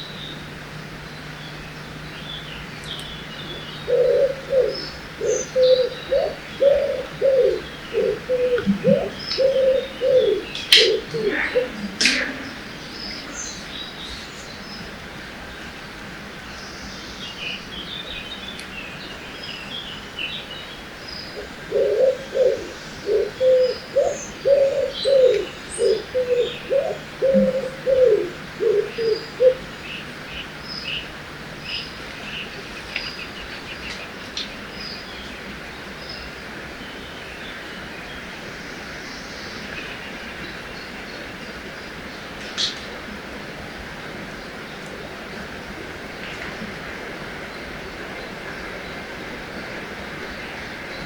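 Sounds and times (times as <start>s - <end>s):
river rushing: 0.0s - 21.7s
small birds chirping: 0.0s - 42.9s
low-pitched bird call: 1.2s - 15.0s.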